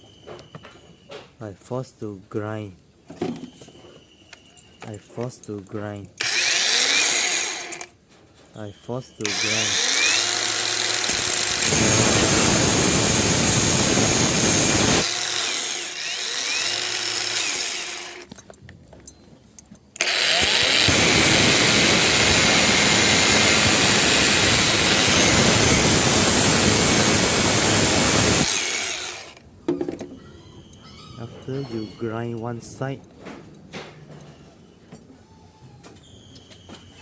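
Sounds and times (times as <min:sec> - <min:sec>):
angle grinder grinding steel: 0:06.2 - 0:07.9, 0:09.2 - 0:18.4, 0:20.0 - 0:29.4
grinder motor winding down: 0:06.2 - 0:07.9, 0:09.2 - 0:18.3, 0:20.0 - 0:29.4.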